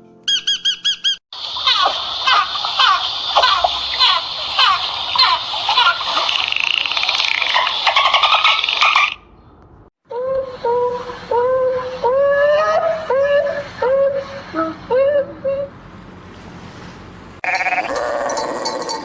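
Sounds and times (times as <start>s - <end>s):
small animals chirping: 0.3s - 9.3s.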